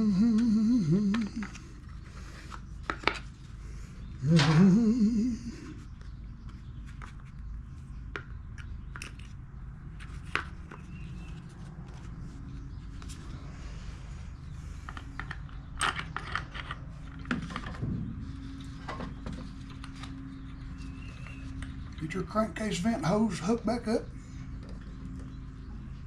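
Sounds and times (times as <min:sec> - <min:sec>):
low background hum: 0:00.0 - 0:26.0
metal parts and tools clinking: 0:14.9 - 0:17.7.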